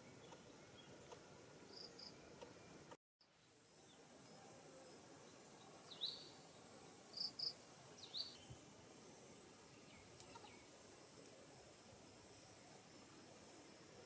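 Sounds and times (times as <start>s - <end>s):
faint outdoor hiss: 0.0s - 14.0s
small bird chirping: 5.8s - 6.5s, 7.1s - 8.6s, 9.7s - 10.7s.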